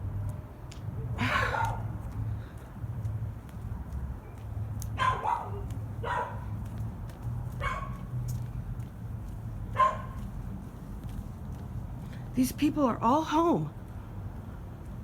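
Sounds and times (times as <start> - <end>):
dog barking: 1.2 - 1.9, 5.0 - 6.5, 7.6 - 8.1, 9.7 - 10.2.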